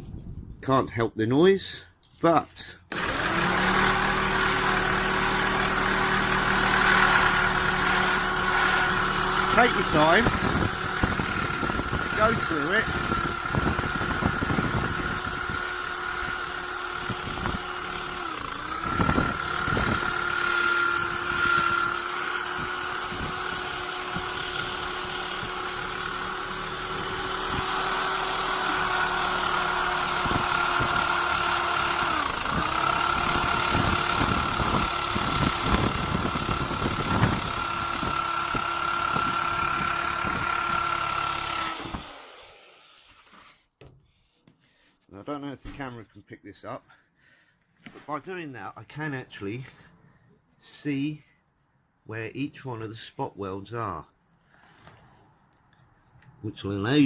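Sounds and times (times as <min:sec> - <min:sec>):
drill wire brush scrubbing metal: 0:02.9 - 0:43.7.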